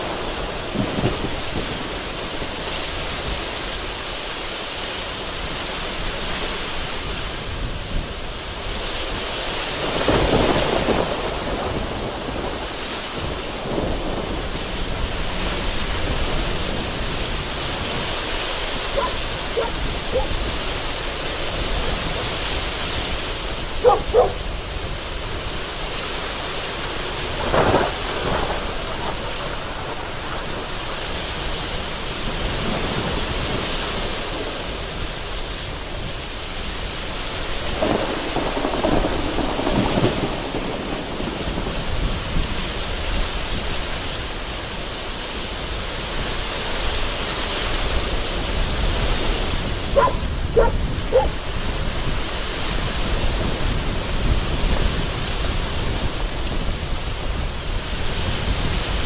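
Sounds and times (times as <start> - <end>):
thunder rumbling: 0.0 - 4.0, 9.7 - 36.3, 37.3 - 44.6, 48.4 - 59.0
heavy rain pouring: 0.0 - 59.0
strong gusty wind: 0.0 - 59.0.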